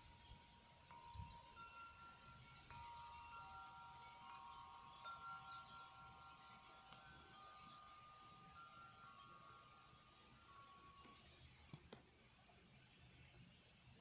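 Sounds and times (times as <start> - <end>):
wind chimes ringing: 0.0 - 11.7.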